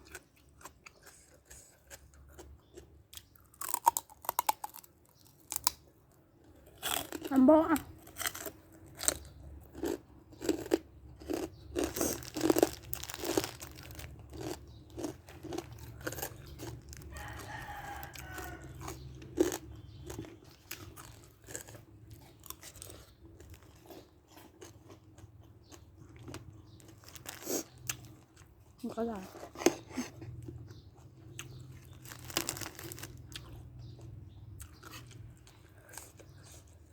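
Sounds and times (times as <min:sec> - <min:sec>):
crunching and chewing crisp food: 0:00.0 - 0:36.9
rooster crowing: 0:17.0 - 0:19.1.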